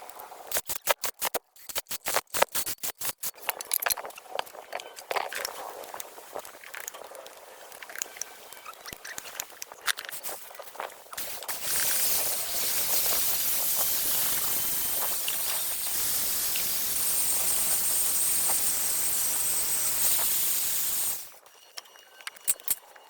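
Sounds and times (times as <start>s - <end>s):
compressed air spraying hiss: 11.2s - 21.3s.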